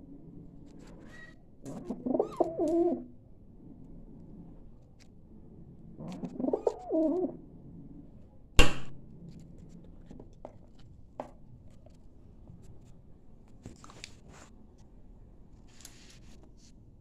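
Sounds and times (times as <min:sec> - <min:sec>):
dove cooing: 0:01.7 - 0:03.1, 0:06.0 - 0:07.4
sharp knock: 0:08.6 - 0:09.0.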